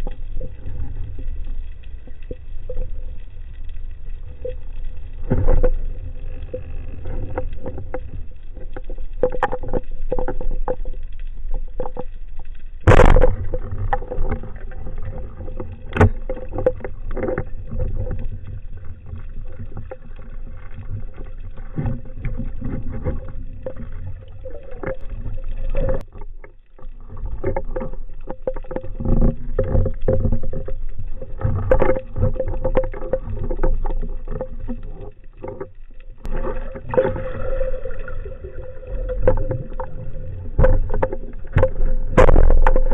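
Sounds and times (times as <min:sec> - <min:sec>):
underwater rumble: 0:00.0 - 0:42.9
clicks and knocks: 0:40.6 - 0:42.9.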